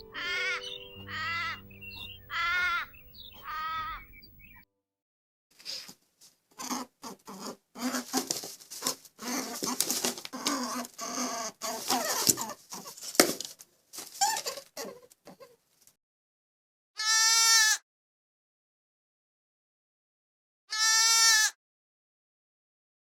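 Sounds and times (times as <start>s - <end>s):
animal calls and clicks: 6.6s - 13.5s.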